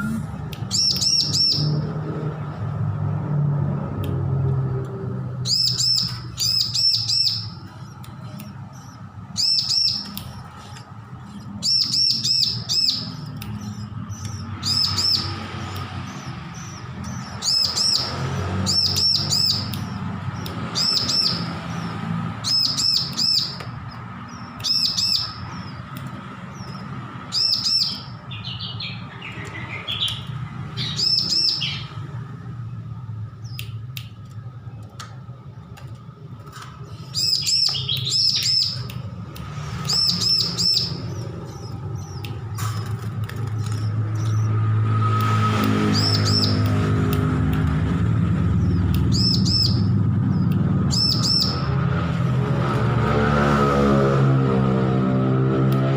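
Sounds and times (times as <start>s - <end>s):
bird high sharp chirps: 0.0s - 2.0s, 5.4s - 32.4s, 36.8s - 51.8s.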